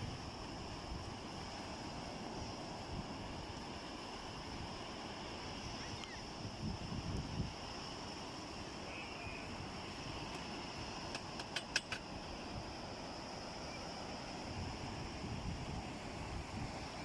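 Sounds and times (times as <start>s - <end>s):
seaside wind: 0.0s - 17.0s
thin high hiss: 0.0s - 17.0s
sharp clicks: 11.1s - 12.0s.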